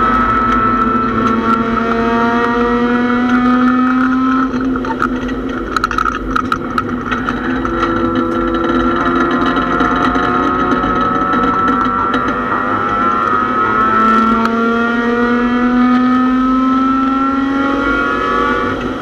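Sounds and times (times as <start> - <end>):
race car engine revving: 0.0 - 19.0
sharp rattles and clicks: 0.1 - 14.6, 18.6 - 19.0.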